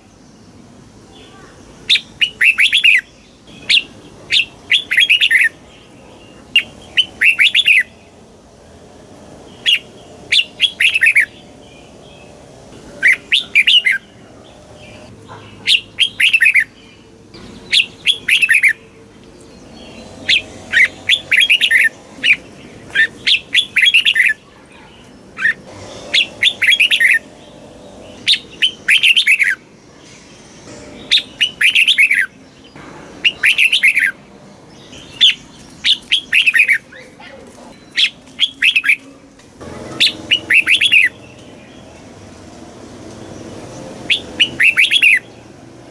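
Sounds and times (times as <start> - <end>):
bulbul singing whistled notes: 19.5 - 24.4, 30.7 - 32.4, 33.2 - 34.2, 44.1 - 45.2.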